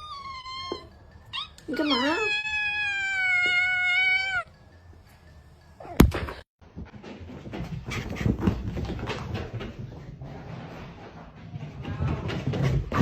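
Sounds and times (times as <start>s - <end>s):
cat meowing: 0.0s - 4.5s
clattering and rustling: 6.0s - 13.0s.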